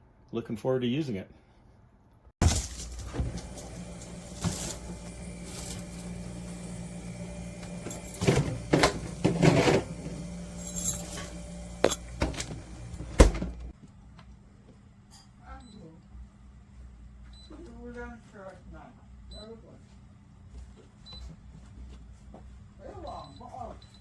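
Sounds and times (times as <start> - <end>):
handling knocks and rustles: 2.4 - 13.7
wine cooler humming: 2.4 - 13.7.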